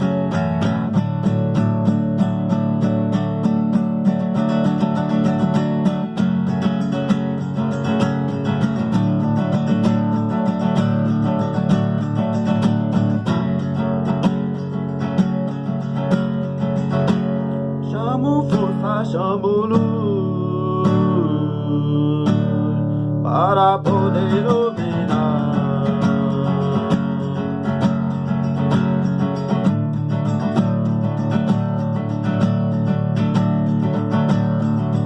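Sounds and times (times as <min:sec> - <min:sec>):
strummed acoustic guitar: 0:00.0 - 0:35.0
person singing: 0:17.8 - 0:28.0.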